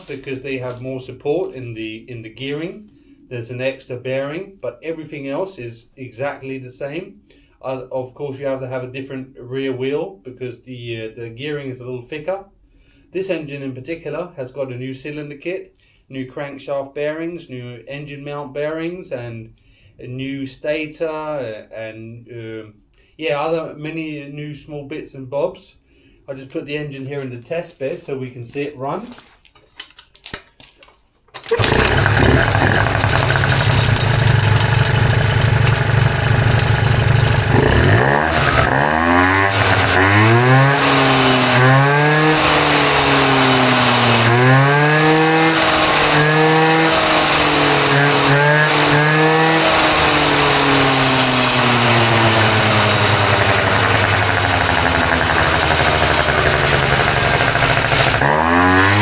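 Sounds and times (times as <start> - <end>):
scooter engine idling and revving: 31.5 - 59.0.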